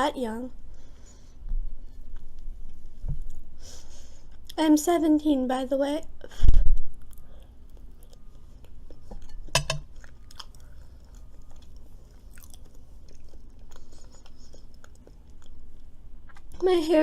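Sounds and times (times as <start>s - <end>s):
person chewing food: 1.1s - 3.5s, 7.0s - 16.6s.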